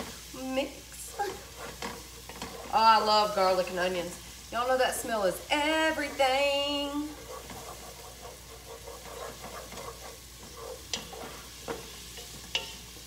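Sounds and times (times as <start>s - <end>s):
onions sizzling in oil: 0.0s - 13.0s
spoon stirring and scraping: 0.9s - 13.0s.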